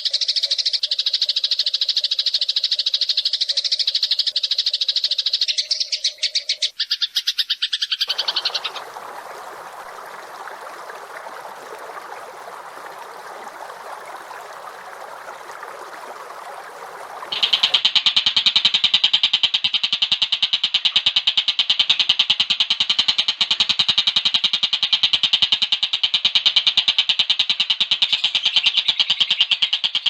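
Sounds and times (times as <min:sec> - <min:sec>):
songbird chirping trill: 0:00.1 - 0:17.8
rough bird chattering: 0:17.2 - 0:17.8.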